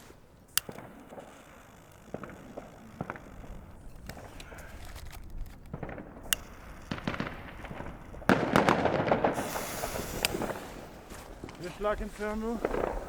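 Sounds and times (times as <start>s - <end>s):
dense firework crackling: 0.0s - 13.0s
firework hiss: 0.0s - 13.0s
fireworks popping and cracking: 0.0s - 13.0s
loud firework bang: 6.9s - 13.0s.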